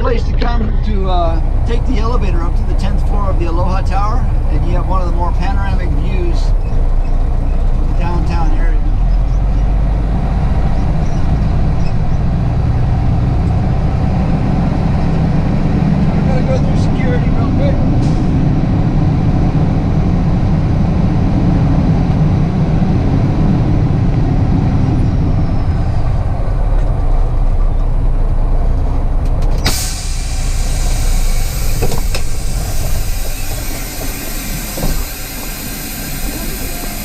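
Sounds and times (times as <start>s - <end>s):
truck engine running: 0.0s - 37.0s
air brake hiss: 29.6s - 37.0s.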